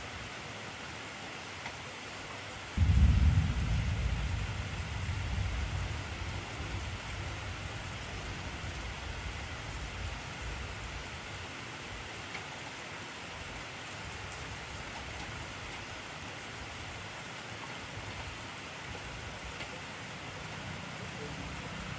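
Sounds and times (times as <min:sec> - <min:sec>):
heavy rain hissing: 0:02.7 - 0:12.3, 0:13.0 - 0:21.9
thunder rumble: 0:02.8 - 0:11.0.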